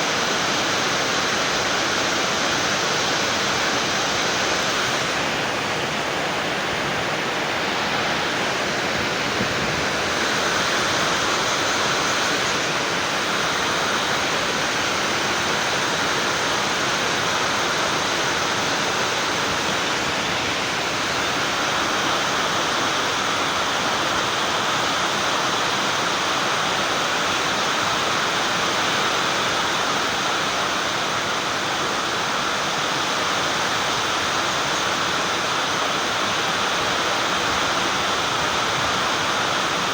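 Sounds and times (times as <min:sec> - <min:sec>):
steady rushing noise: 0:00.0 - 0:24.8.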